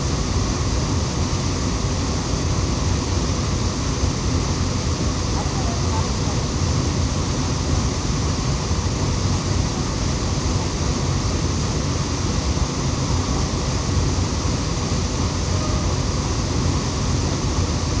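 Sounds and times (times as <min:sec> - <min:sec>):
waterfall rushing: 0:14.6 - 0:17.8.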